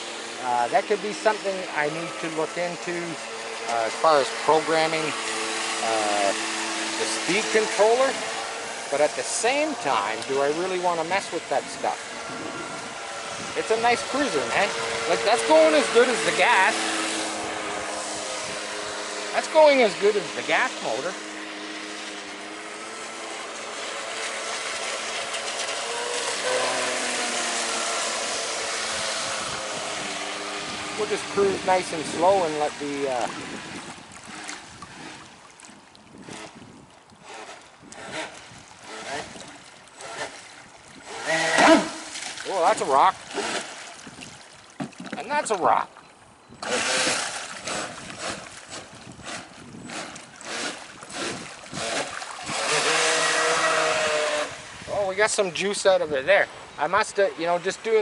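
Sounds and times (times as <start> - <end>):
toy boat motor whine: 0.0 - 44.2, 46.4 - 55.7
rushes of water: 0.0 - 56.6
wind noise: 11.6 - 16.3, 28.8 - 39.6, 46.4 - 56.5.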